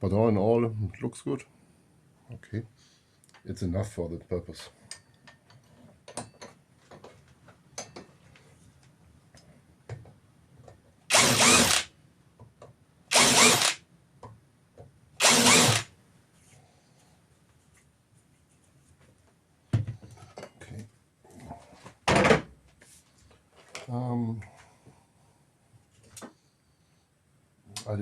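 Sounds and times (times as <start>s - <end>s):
power drill bursts: 11.1s - 11.9s, 13.1s - 13.8s, 15.2s - 15.9s.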